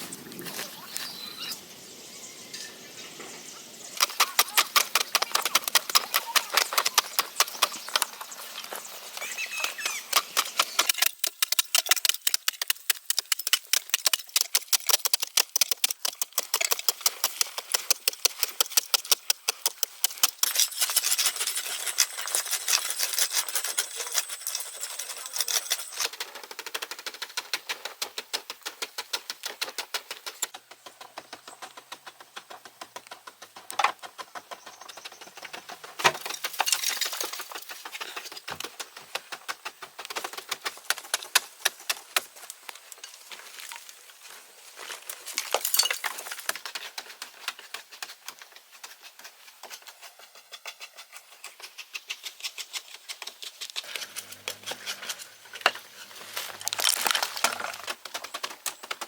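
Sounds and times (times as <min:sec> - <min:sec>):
hand tools tapping and clinking: 0:09.2 - 0:26.2, 0:45.3 - 0:48.0.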